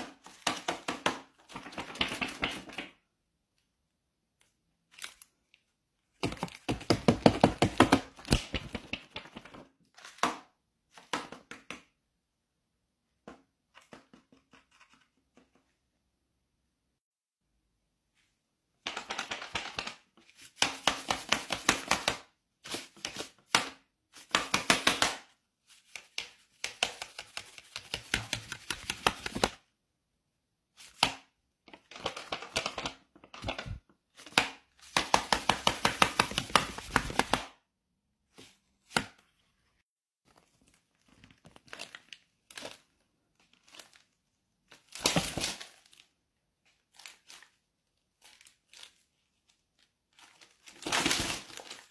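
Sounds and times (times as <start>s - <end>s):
stiff paper crinkling: 40.2s - 46.1s, 46.7s - 51.9s.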